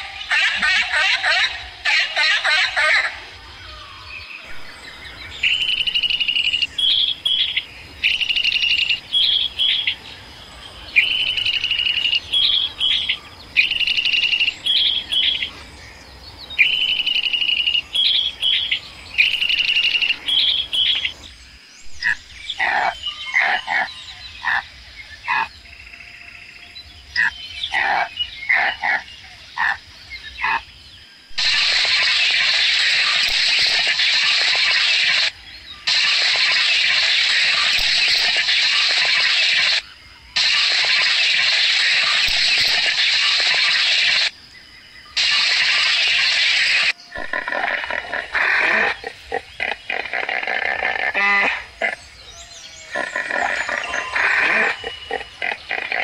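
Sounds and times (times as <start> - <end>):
bird song whistled phrase: 16.6 - 21.1
short bird chirps: 31.3 - 44.3, 45.0 - 47.3
loud steady noise: 31.3 - 44.4, 45.1 - 48.5.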